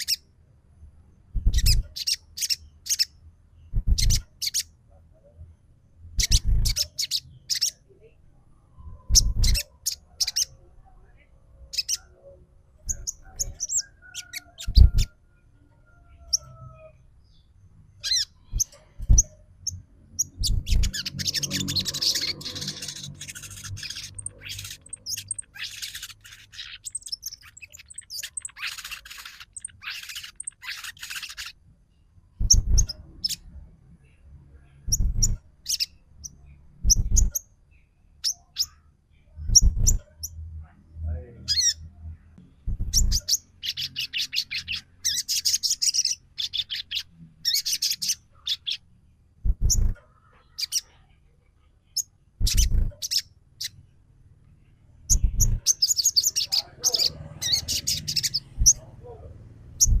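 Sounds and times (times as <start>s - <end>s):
bird harsh rasping chatter: 1.4s - 3.1s, 3.8s - 4.7s, 6.2s - 7.8s, 9.1s - 10.5s, 12.9s - 15.2s, 20.2s - 31.6s, 42.8s - 48.8s, 52.4s - 53.8s, 55.1s - 59.2s
dull low thumps: 3.7s - 4.2s, 36.8s - 37.4s, 42.6s - 43.2s, 49.4s - 50.0s, 55.1s - 55.6s, 59.8s - 60.0s.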